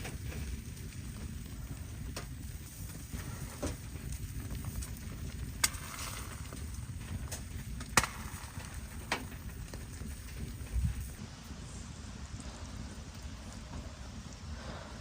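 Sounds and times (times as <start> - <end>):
steady low rumble: 0.0 - 15.0
sharp cracks or knocks: 7.3 - 9.4.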